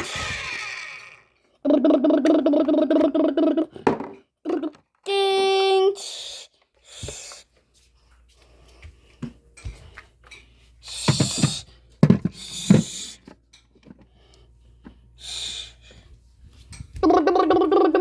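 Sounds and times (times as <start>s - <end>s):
child making engine noise: 1.6s - 3.8s, 4.5s - 6.5s, 17.0s - 18.0s.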